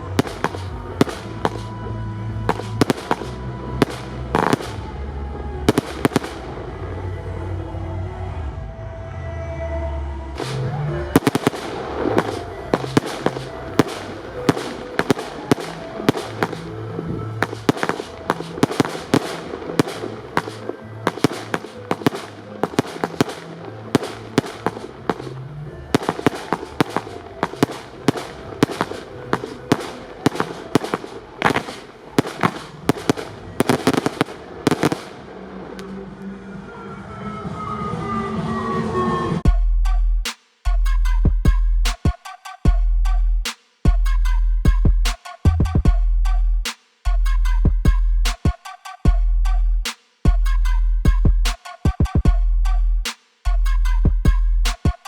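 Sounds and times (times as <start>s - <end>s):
fireworks banging: 0.0s - 1.8s, 2.5s - 4.8s, 10.4s - 36.2s
background music with bass line: 0.0s - 35.1s, 38.6s - 55.0s.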